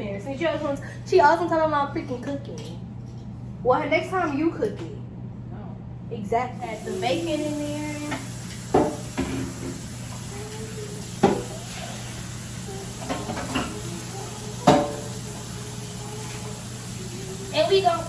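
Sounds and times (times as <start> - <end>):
utensils knocking against cookware: 8.1 - 9.8, 11.2 - 11.6, 13.0 - 13.9, 14.6 - 15.1.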